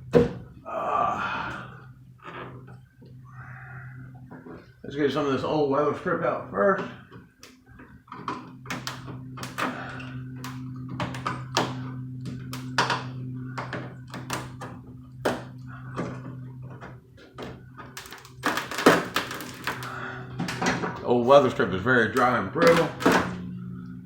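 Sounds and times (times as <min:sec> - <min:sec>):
steady low hum: 0:00.0 - 0:24.0
rubber strip cracking and scraping: 0:18.0 - 0:20.0.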